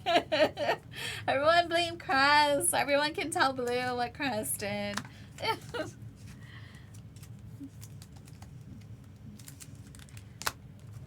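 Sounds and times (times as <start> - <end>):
cards and packaging rustling: 4.9 - 11.0.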